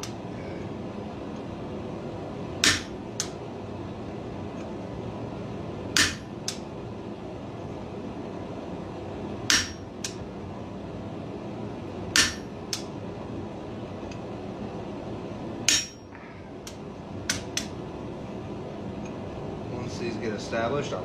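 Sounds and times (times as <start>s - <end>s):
steady background noise: 0.0s - 21.0s
hammer striking steel: 2.6s - 3.0s, 6.0s - 6.6s, 9.5s - 10.2s, 12.2s - 12.8s, 15.7s - 16.2s.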